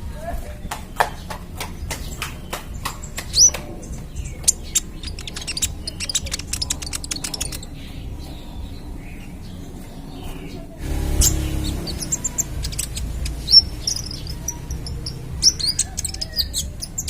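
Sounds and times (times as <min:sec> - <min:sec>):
sunbird chips and ticks: 0:00.6 - 0:09.2, 0:10.9 - 0:17.0.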